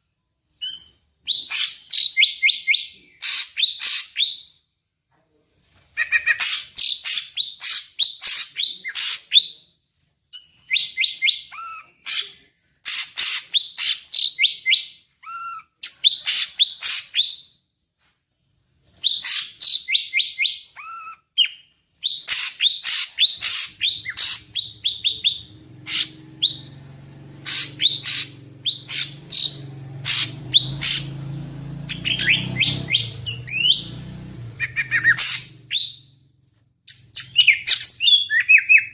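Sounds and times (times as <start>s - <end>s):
bird chirping and trilling: 0.6s - 4.5s, 19.0s - 36.2s, 36.9s - 38.9s.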